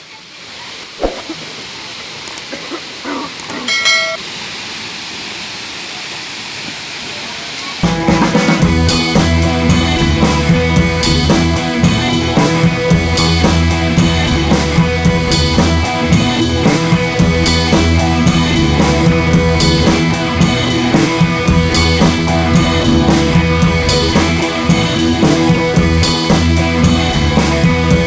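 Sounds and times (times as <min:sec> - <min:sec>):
drum kit beat: 0:07.8 - 0:28.0
guitar: 0:07.8 - 0:28.0.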